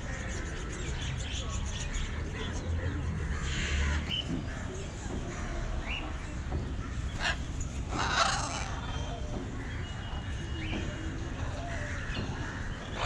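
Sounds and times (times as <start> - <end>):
birds chirping: 0.0 - 13.0
bird harsh squawk: 7.2 - 9.2.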